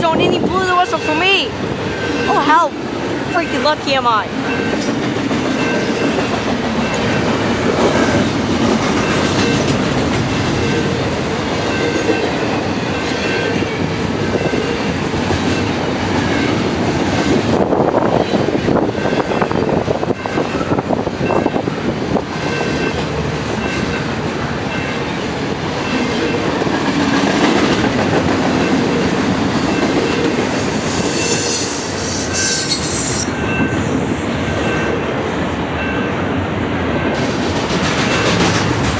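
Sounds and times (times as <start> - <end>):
train wheels rumbling on rail: 0.0 - 38.9
high wheel squeal: 29.6 - 34.9.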